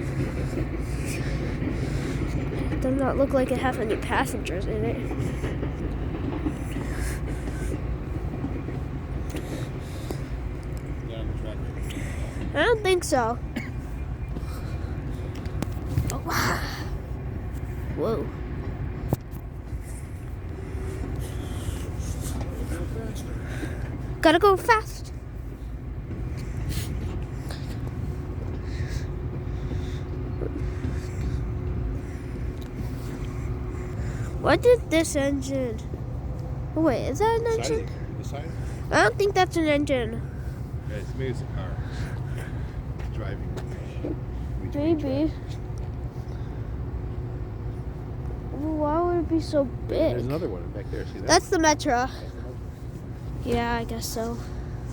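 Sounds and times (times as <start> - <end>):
diesel train engine running: 0.0 - 54.9.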